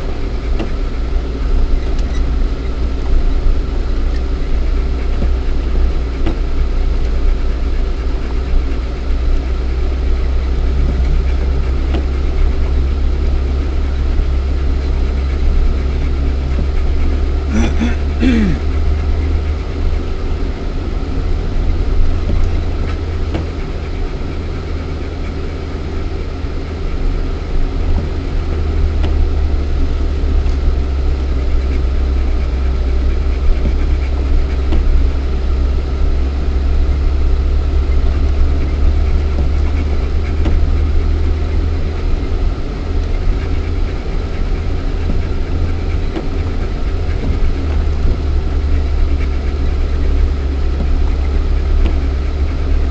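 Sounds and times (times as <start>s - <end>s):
car engine droning inside cabin: 0.0s - 52.9s.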